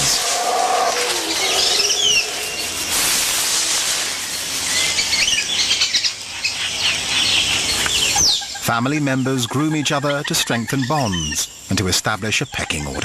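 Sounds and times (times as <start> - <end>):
falling whistled bird calls: 0.0 - 2.9
dense hiss: 0.0 - 6.5
high insect drone: 0.0 - 8.2.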